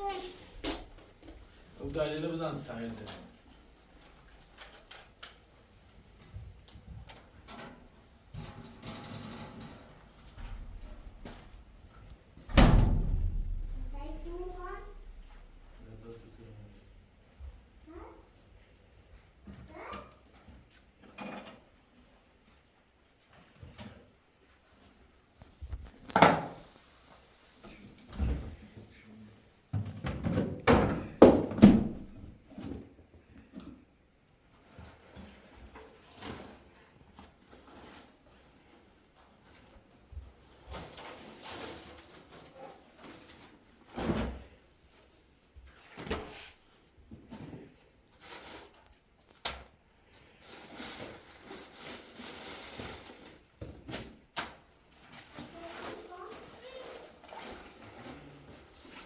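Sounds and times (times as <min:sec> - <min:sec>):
rustling and scraping: 0:00.0 - 0:16.8, 0:34.5 - 0:49.4, 0:50.1 - 0:54.2, 0:54.8 - 0:59.0
knocks and thumps: 0:10.3 - 0:15.8.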